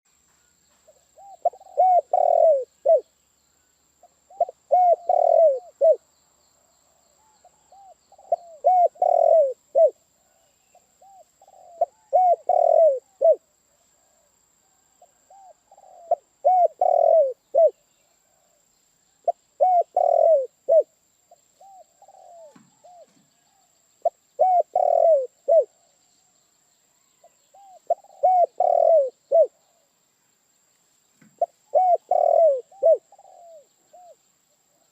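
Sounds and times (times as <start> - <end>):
dove cooing: 0.9 - 3.1, 4.3 - 6.0, 7.2 - 13.4, 15.0 - 18.6, 19.2 - 20.9, 21.6 - 25.8, 27.1 - 29.9, 31.4 - 34.8.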